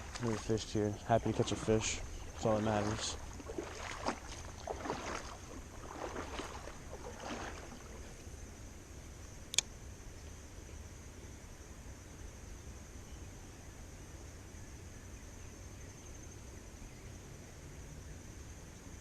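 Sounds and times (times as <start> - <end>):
flowing water rushing: 0.0 - 8.2
creek water splashing: 0.0 - 9.4
sharp click: 9.5 - 9.7.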